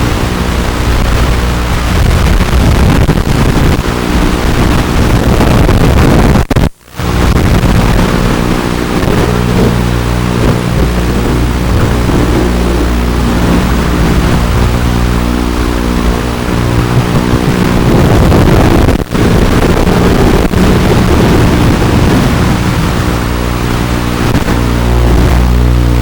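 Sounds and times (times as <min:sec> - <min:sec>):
wind rush on microphone: 0:00.0 - 0:26.0
quadcopter motors humming: 0:07.0 - 0:26.0.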